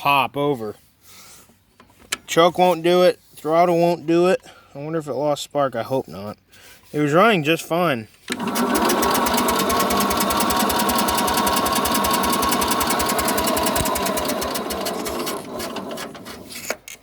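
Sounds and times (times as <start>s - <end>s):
engine cranking by electric starter: 8.3s - 16.7s.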